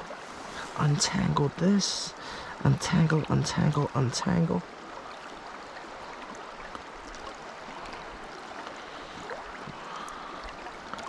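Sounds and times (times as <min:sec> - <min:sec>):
creek water rushing: 0:00.0 - 0:11.0
faint small ticks: 0:06.2 - 0:11.0.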